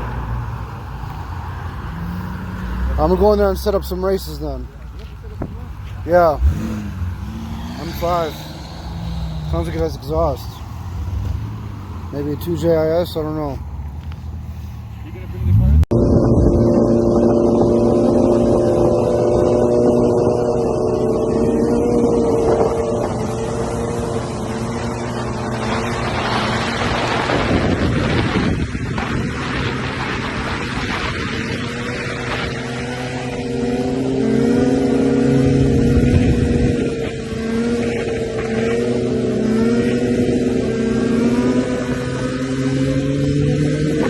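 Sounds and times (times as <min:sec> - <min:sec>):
deep engine sound: 0:00.0 - 0:12.4, 0:13.0 - 0:44.0
car engines idling: 0:00.0 - 0:15.9, 0:18.5 - 0:44.0
rushing swell: 0:06.1 - 0:13.8.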